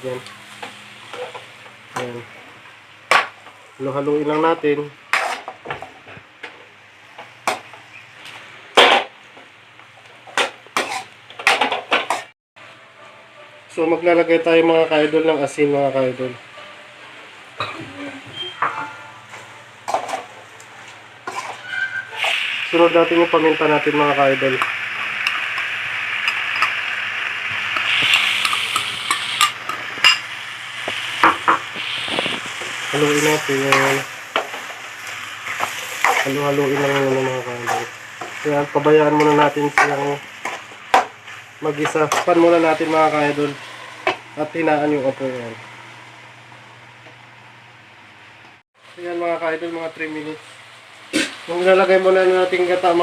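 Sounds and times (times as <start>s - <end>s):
frying sizzle: 0.0s - 12.3s, 18.1s - 47.4s, 48.1s - 53.0s
spoon scraping frying pan: 5.1s - 5.6s, 10.3s - 12.3s, 18.8s - 20.4s, 21.2s - 22.4s.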